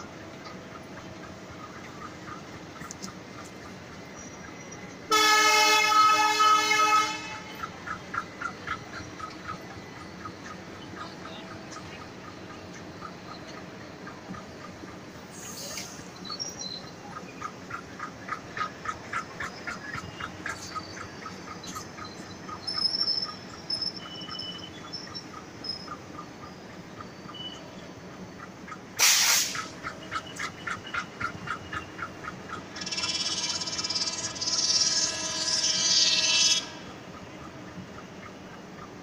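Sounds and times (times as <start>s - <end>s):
short sharp hiss: 29.0s - 29.7s
high-pitched wheel squeal: 32.8s - 36.9s.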